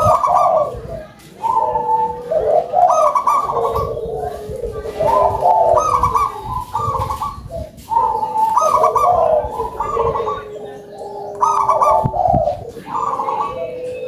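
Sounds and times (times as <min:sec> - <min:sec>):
doves cooing: 0:00.0 - 0:14.0.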